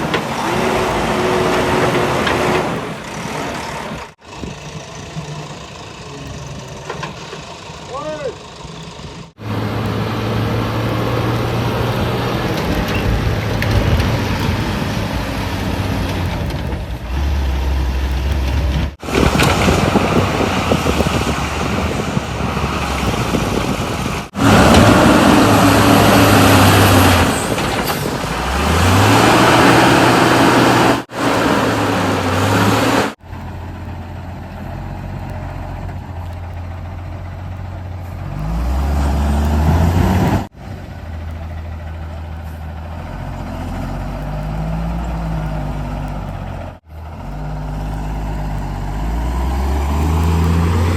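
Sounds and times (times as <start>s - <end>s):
heavy diesel engines revving: 0.0s - 50.9s.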